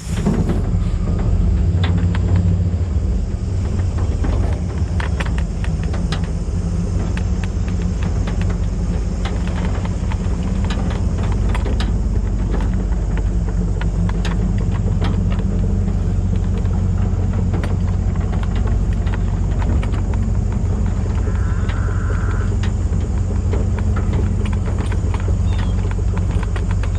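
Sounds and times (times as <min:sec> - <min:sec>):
vehicle engine humming: 0:00.0 - 0:26.9.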